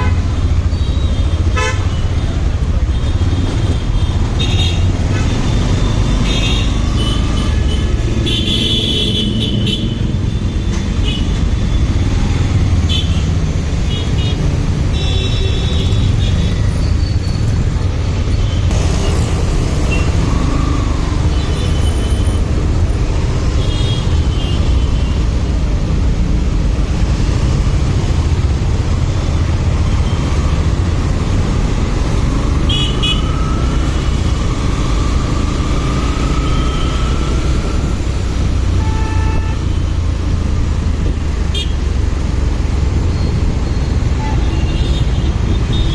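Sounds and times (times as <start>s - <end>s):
vehicle horn toots: 1.5s - 2.0s, 38.8s - 39.7s.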